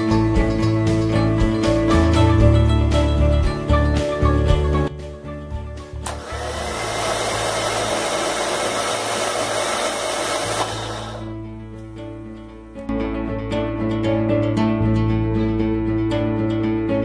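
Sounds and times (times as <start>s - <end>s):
soft guitar music: 0.0s - 6.1s, 11.2s - 17.0s.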